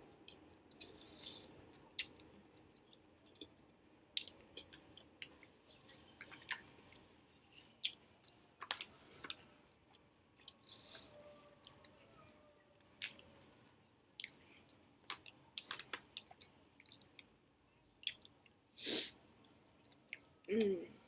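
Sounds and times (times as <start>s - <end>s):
person chewing food: 0.1s - 12.1s, 14.2s - 17.3s, 17.9s - 18.6s
wet mouth clicks and lip smacks: 2.0s - 2.2s, 14.2s - 17.3s, 18.0s - 18.3s.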